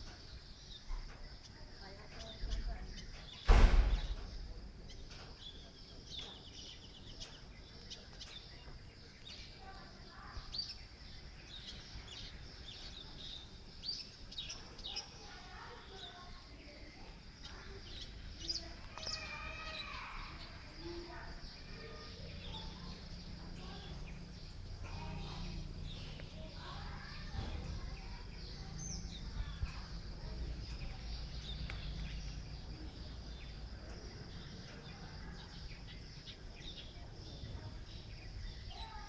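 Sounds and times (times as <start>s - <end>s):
birds chirping: 0.0s - 39.0s
loud thump: 3.5s - 4.3s, 27.2s - 28.0s.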